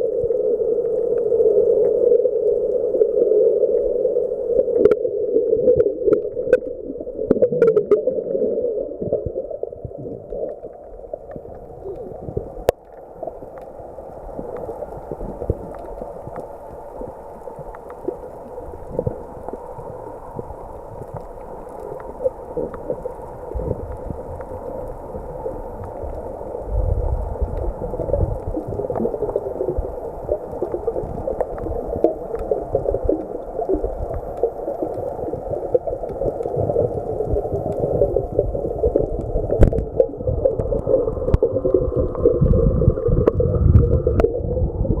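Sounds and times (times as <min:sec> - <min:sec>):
muffled underwater crackling: 0:00.0 - 0:45.0.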